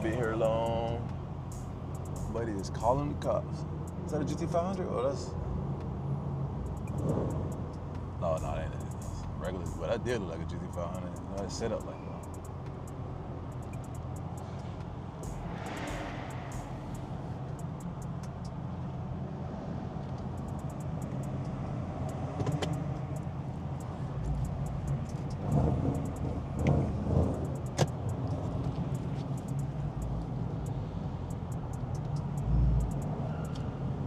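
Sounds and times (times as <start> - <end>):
car engine and road noise: 0.0 - 34.0
sharp click: 6.7 - 7.8, 12.2 - 18.6, 20.4 - 33.7.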